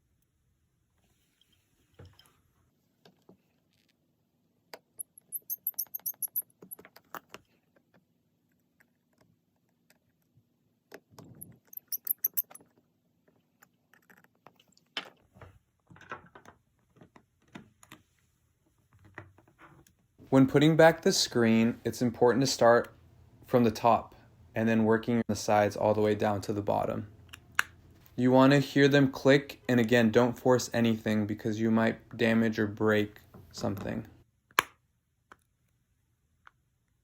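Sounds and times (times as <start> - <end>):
metal tools clicking on phone parts: 5.0 - 7.2, 11.4 - 12.6.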